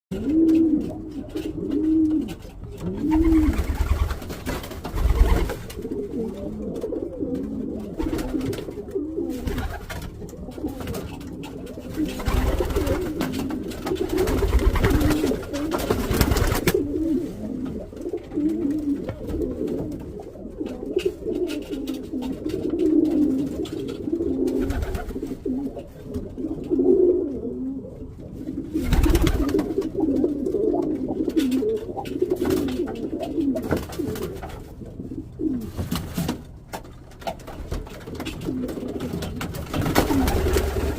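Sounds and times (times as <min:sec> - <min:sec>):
rustling noise: 0:00.1 - 0:26.5, 0:35.4 - 0:40.9
pigeons cooing: 0:00.1 - 0:35.8, 0:37.6 - 0:40.9.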